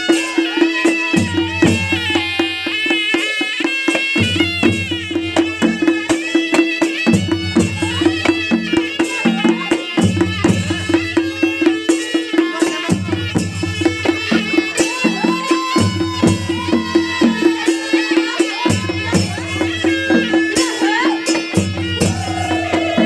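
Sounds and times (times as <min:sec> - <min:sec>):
drums and cymbals beat: 0:00.0 - 0:23.0
shehnai melody: 0:00.0 - 0:23.0.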